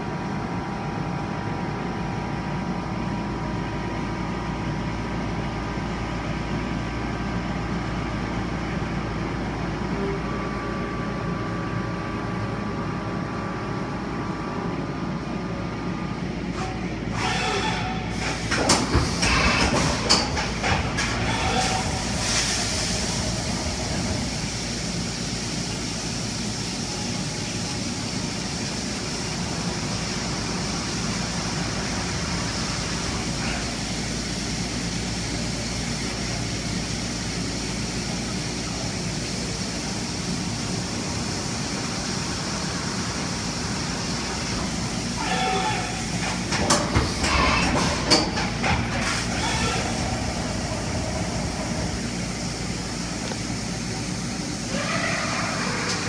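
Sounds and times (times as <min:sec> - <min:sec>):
irregular clatter and hiss: 0:18.1 - 0:21.3, 0:46.0 - 0:49.4.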